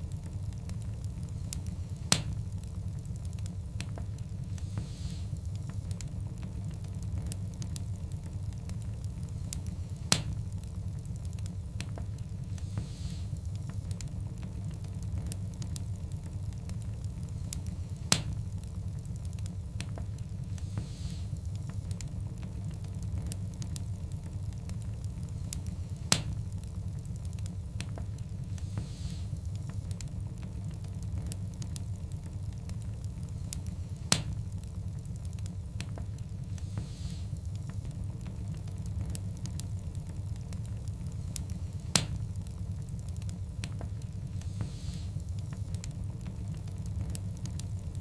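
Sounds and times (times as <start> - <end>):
loud snap of fire: 0.0 - 48.0
low rumble of flames: 0.0 - 48.0
wood fire crackling: 0.0 - 48.0
loud pop from fire: 2.1 - 2.4, 10.1 - 10.4, 18.1 - 18.4, 26.1 - 26.4, 34.1 - 34.4, 41.4 - 42.2.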